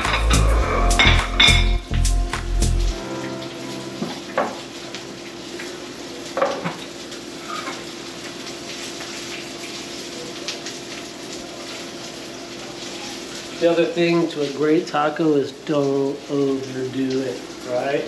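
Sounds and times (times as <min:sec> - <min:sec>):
dishes and utensils clinking: 0:01.0 - 0:01.8
fish frying in hot oil: 0:02.8 - 0:18.0.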